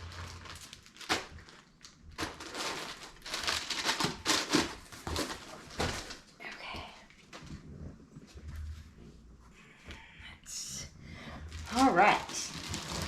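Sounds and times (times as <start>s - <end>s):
packaging rustling and crinkling: 0.0s - 6.5s, 11.4s - 13.0s.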